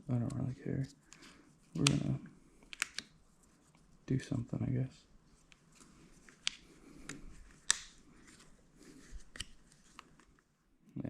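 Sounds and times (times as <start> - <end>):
hands rustling: 5.3 - 10.4.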